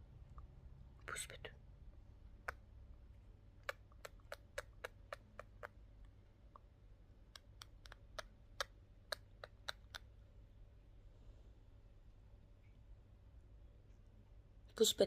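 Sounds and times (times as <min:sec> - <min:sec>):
bird beaks clicking together: 0:03.6 - 0:05.8, 0:07.4 - 0:10.1.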